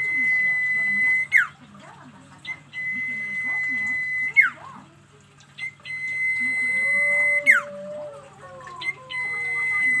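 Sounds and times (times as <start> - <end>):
bird whistling long notes: 2.5 - 4.6, 5.6 - 7.7, 8.8 - 10.0.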